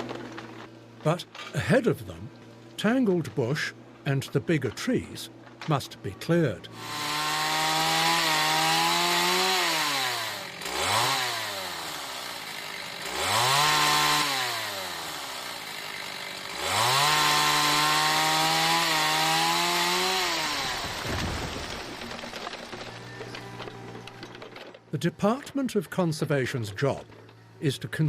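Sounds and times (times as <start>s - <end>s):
chainsaw engine revving: 6.7s - 22.8s.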